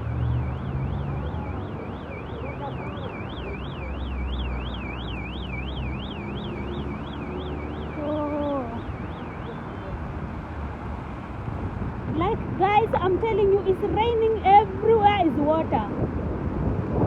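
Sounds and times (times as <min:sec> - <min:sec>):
electronic alarm warbling: 0:00.0 - 0:09.9
low traffic hum: 0:00.0 - 0:17.0.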